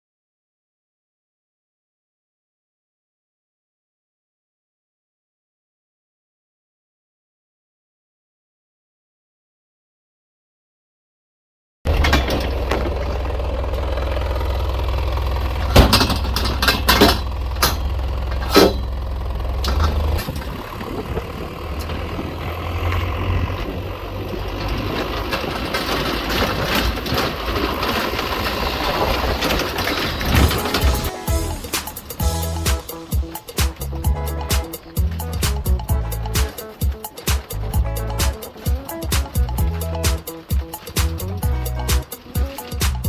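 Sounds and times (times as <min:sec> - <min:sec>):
truck engine and road rumble: 0:11.9 - 0:43.0.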